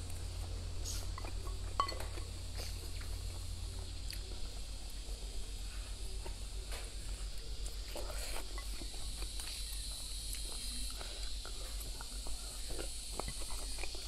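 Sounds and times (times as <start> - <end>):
insects chirring: 0.1 - 14.0
chewing ribs with wet smacks: 6.2 - 14.0.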